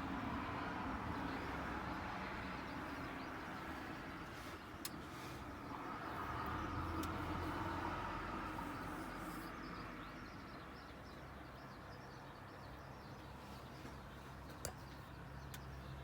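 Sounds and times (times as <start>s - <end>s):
vehicle passing by: 0.0s - 10.0s.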